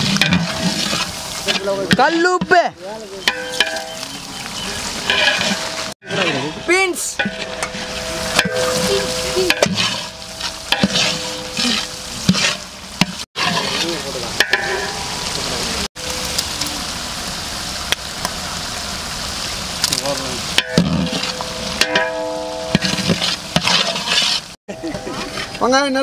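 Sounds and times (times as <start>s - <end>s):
ladle scraping a pot: 0.0s - 2.5s, 3.2s - 15.1s, 20.7s - 25.7s
vegetables sizzling in oil: 0.0s - 26.0s.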